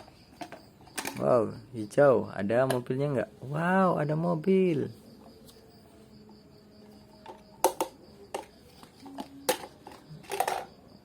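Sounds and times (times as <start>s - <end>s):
plastic toy clicks and knocks: 0.0s - 1.3s, 7.2s - 10.8s.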